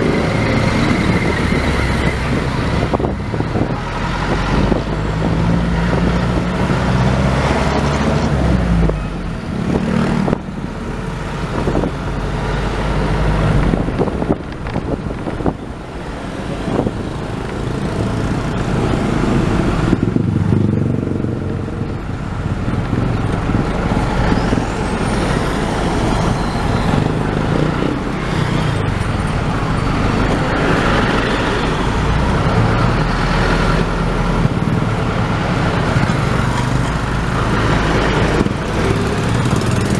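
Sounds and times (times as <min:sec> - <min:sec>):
car and truck engines: 0:00.0 - 0:39.9
tyre and road noise: 0:00.0 - 0:39.9.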